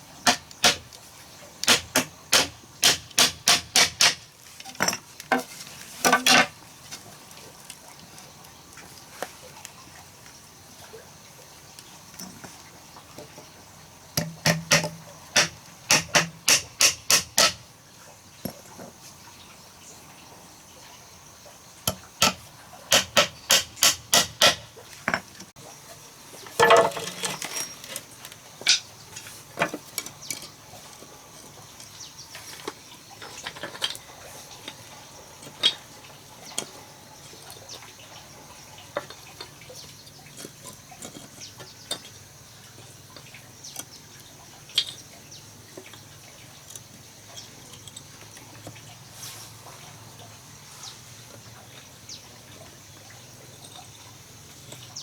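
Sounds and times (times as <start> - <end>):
hammering sharp strikes: 1.7 - 4.2, 14.2 - 17.6, 22.2 - 24.6.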